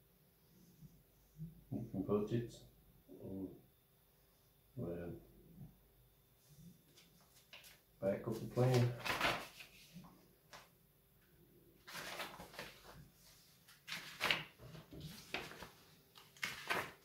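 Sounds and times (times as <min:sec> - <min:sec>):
packaging rustling: 0:11.8 - 0:13.0, 0:13.7 - 0:17.0.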